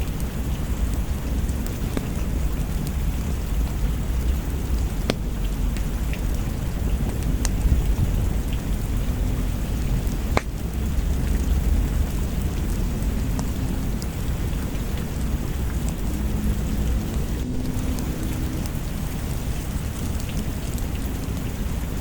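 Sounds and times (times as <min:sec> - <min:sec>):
thunder rumble: 0:00.0 - 0:21.9
steady rain: 0:00.0 - 0:22.0
wood fire crackling: 0:00.0 - 0:22.0.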